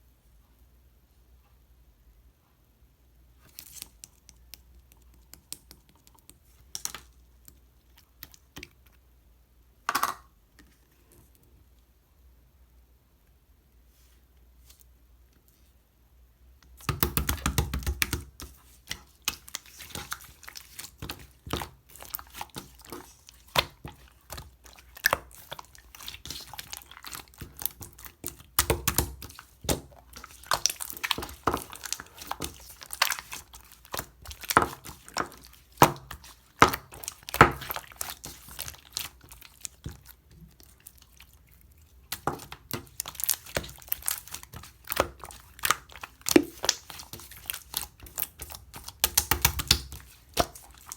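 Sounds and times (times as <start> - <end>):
slime squished by hand: 16.7 - 50.9.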